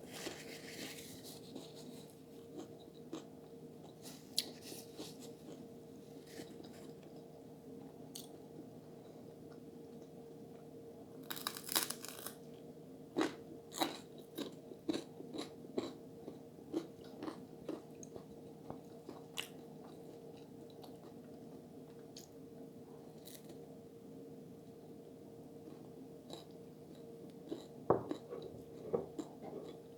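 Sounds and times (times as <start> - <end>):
faint steady hum: 0.0 - 29.9
crunchy bite of food: 11.2 - 12.4, 27.5 - 28.3
chewing with sharp clicks: 25.7 - 28.5.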